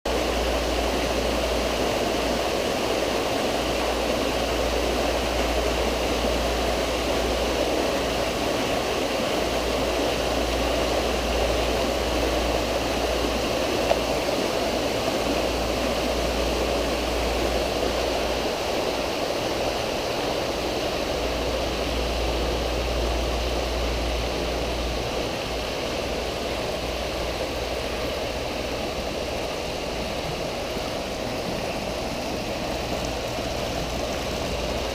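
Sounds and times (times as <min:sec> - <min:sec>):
water falling into a pool: 0:00.1 - 0:34.9.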